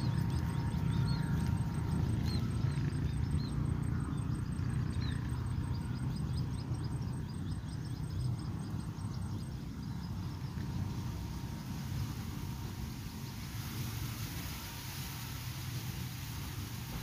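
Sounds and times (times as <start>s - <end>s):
small birds chirping: 0.0s - 13.6s
steady low rumble: 0.0s - 17.0s.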